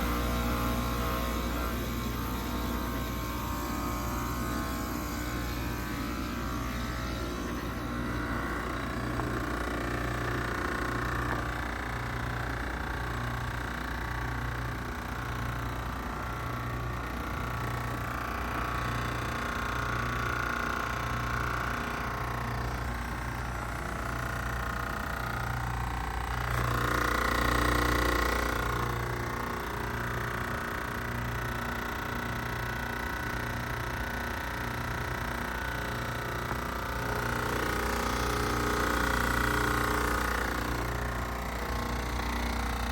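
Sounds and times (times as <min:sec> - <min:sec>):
high whine: 0:00.0 - 0:12.2
heat pump humming: 0:00.0 - 0:42.9.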